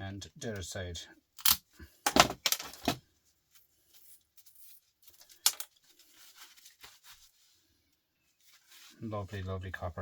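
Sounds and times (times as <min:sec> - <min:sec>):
small parts clicking and knocking: 0:01.4 - 0:03.0, 0:04.5 - 0:05.8.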